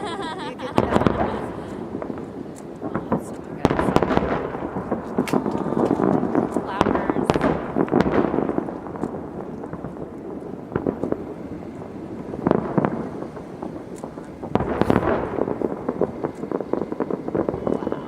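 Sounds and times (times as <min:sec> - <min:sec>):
fireworks bursting and crackling: 0:00.0 - 0:18.0
loud firework bangs: 0:00.0 - 0:18.0.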